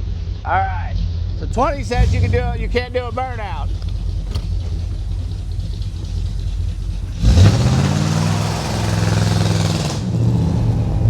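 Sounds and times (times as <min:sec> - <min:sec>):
car engine idling and revving: 0:01.0 - 0:11.0
tyres spinning hiss: 0:01.6 - 0:10.0.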